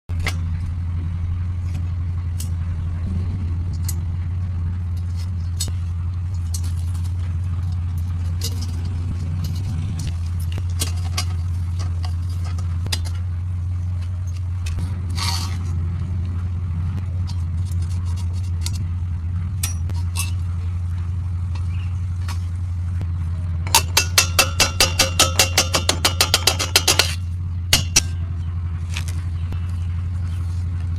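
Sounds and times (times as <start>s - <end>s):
steady low hum: 0.1s - 30.9s
scrape: 14.8s - 15.8s, 17.3s - 18.8s.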